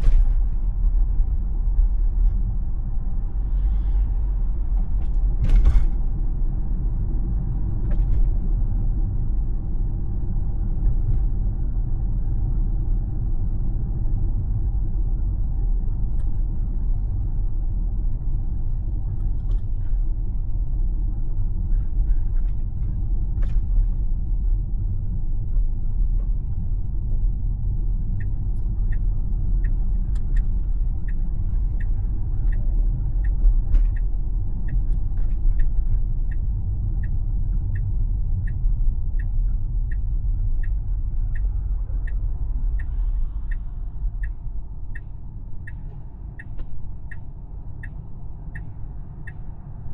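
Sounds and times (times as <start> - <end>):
road and tyre rumble in car: 0.0 - 49.9
turn signal ticking: 21.5 - 49.9.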